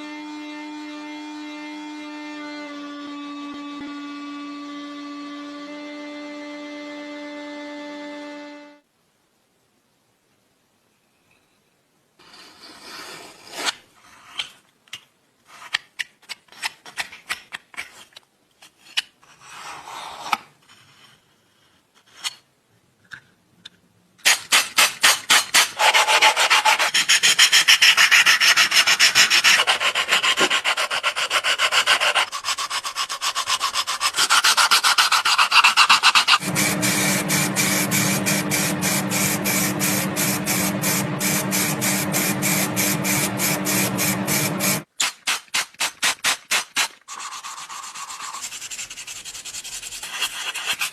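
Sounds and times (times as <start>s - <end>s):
hand sanding strokes: 25.0s - 44.8s, 47.1s - 50.9s
steady low hum: 36.4s - 44.9s.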